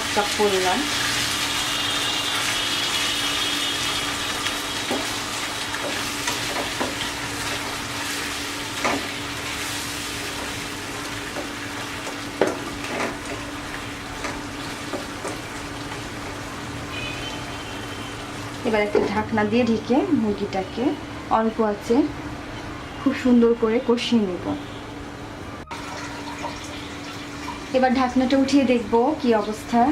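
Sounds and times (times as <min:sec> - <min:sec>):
chicken sizzling in a pan: 0:00.0 - 0:16.7
spatula knocking against pan: 0:11.3 - 0:13.2.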